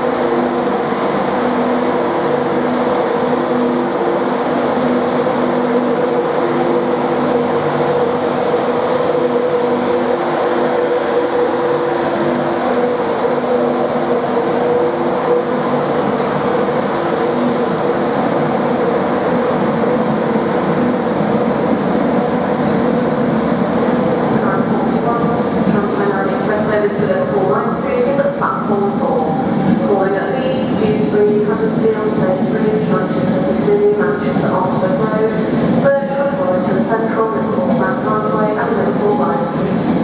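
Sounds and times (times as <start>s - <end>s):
electric locomotive hum: 0.0s - 40.0s.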